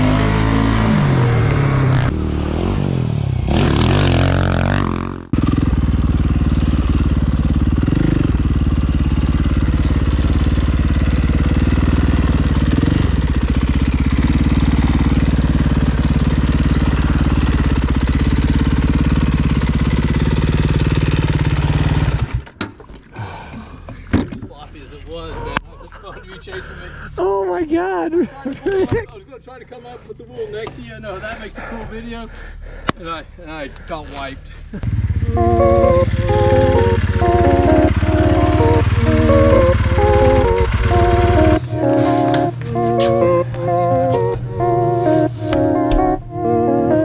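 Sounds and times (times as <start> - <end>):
dirt bike engine running: 0.0 - 22.4, 34.8 - 46.4
background music: 35.2 - 47.0.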